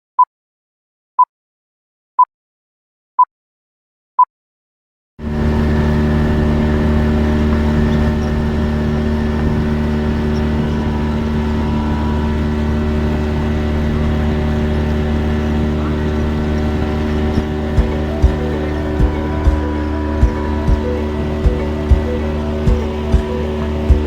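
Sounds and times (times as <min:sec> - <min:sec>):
outboard motor running: 0:05.2 - 0:24.0.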